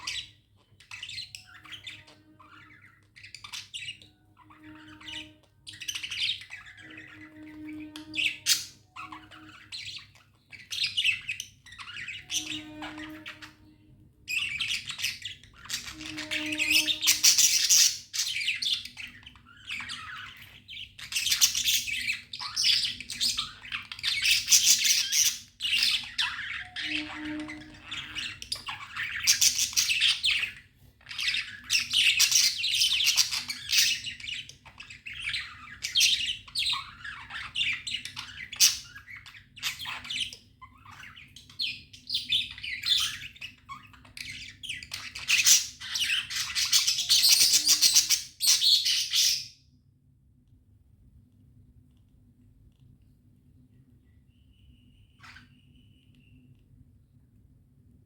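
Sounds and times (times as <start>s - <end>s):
budgerigars chirping and chattering: 0.0s - 49.6s, 55.2s - 55.6s.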